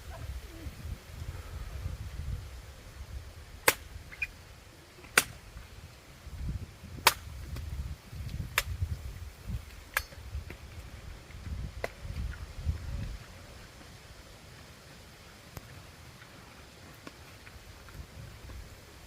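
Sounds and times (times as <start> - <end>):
sharp cracks: 3.6 - 4.3, 5.0 - 5.4, 7.0 - 7.7, 8.5 - 8.8.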